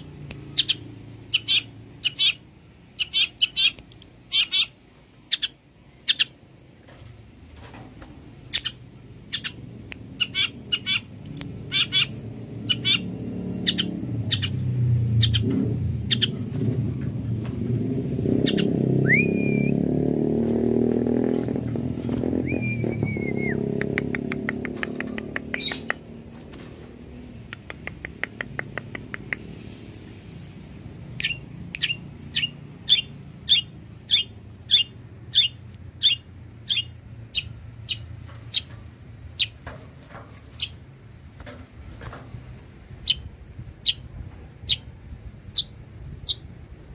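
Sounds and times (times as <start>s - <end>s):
bird whistled notes: 18.5s - 19.8s, 22.4s - 23.6s.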